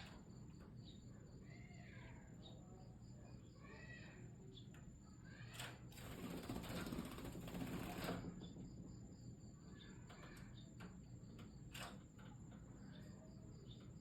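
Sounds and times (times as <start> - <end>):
small birds chirping: 0.0 - 5.6, 9.4 - 14.0.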